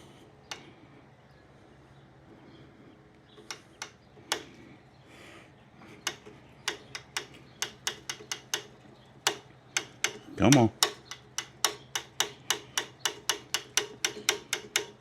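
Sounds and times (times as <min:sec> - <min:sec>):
priming lever clicking: 0:06.0 - 0:15.0.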